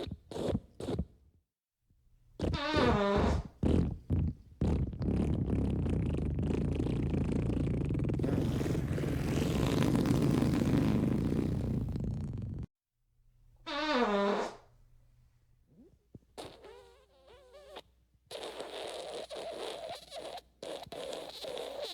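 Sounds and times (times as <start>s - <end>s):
fart sound effects: 2.4s - 12.7s, 13.7s - 14.6s, 16.4s - 21.9s.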